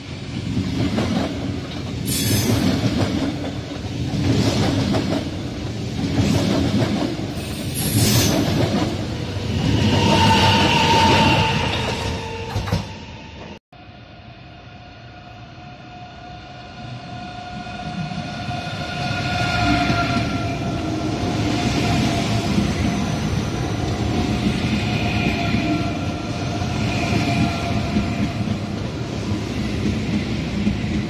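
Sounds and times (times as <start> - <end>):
train rolling past: 0.0 - 13.9, 14.5 - 31.0
high-speed train whine: 0.0 - 31.0
train wheels squealing: 2.0 - 2.8, 7.3 - 8.6, 9.4 - 13.6.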